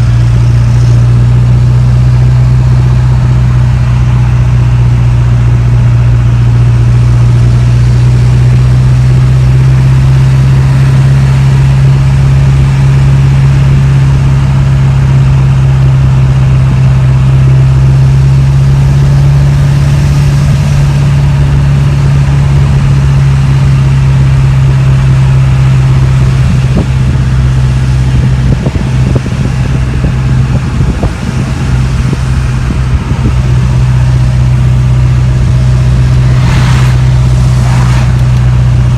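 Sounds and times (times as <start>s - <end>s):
diesel engine droning in cab: 0.0s - 38.9s.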